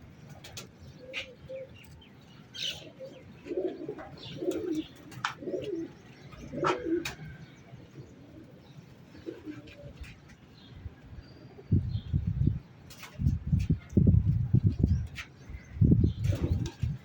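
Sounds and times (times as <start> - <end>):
pigeons cooing: 0.4 - 10.7, 14.9 - 17.0.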